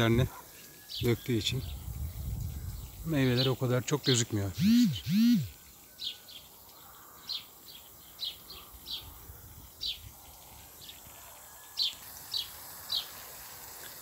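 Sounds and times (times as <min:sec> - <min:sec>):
bird chirping: 0:00.5 - 0:11.1.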